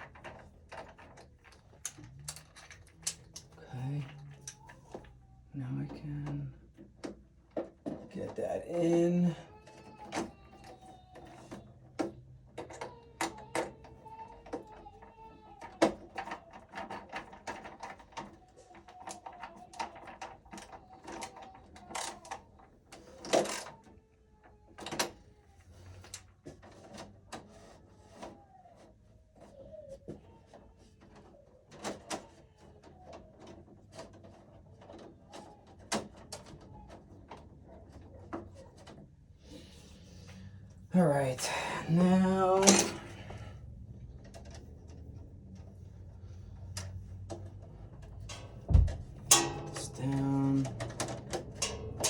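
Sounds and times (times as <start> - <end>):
tools clicking and knocking: 0.0 - 24.0, 42.2 - 43.4, 46.6 - 52.0.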